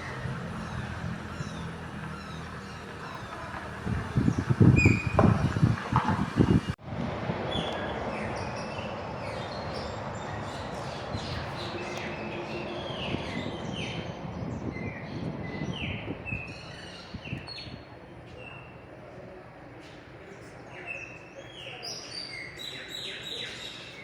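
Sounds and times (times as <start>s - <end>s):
birds whistling calls: 0.0s - 5.6s.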